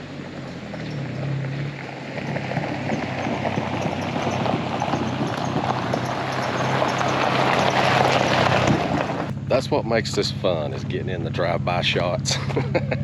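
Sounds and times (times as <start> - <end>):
tyres crunching on gravel: 0.0 - 9.3
car engine running low: 0.0 - 13.0.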